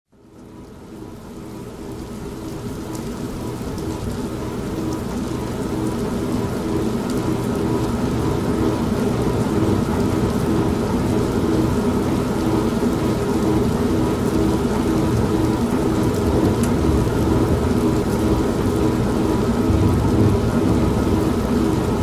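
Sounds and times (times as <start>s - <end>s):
steady rain: 0.1s - 22.0s
washing machine motor hum: 3.2s - 22.0s
low rumble of thunder: 6.8s - 12.8s, 13.6s - 22.0s.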